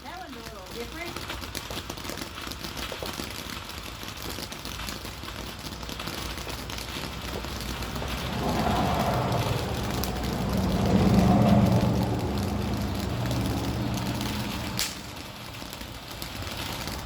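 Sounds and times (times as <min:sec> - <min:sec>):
firework fountain crackling hiss: 0:00.0 - 0:17.0
vehicle engine: 0:06.7 - 0:17.0.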